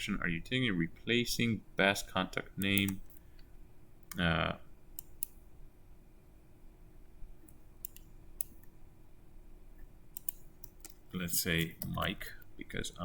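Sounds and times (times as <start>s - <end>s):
faint hum: 0.0s - 13.0s
computer input clicks: 2.6s - 3.2s, 10.2s - 11.0s.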